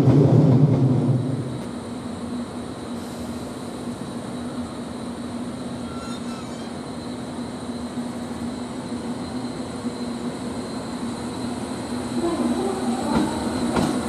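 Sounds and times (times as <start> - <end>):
electric train humming and rumbling: 0.0 - 14.0
faint short squeal: 5.6 - 7.2.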